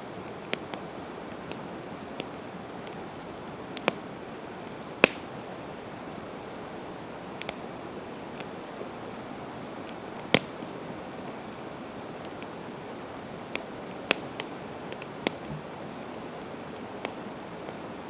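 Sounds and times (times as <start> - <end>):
campfire crackling: 0.2 - 18.0
sharp pops of fire: 3.8 - 12.6, 13.5 - 15.5
fire hissing: 4.6 - 12.7
faint insect chirping: 4.9 - 12.4.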